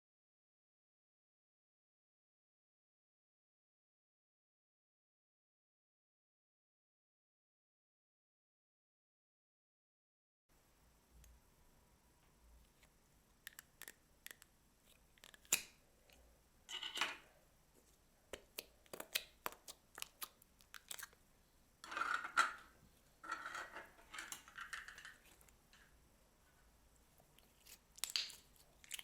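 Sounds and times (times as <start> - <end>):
slime clicking and popping: 13.5 - 14.5, 18.4 - 21.2, 28.0 - 29.0
squishy crackling slime: 13.5 - 15.7, 18.4 - 21.2, 27.4 - 29.0.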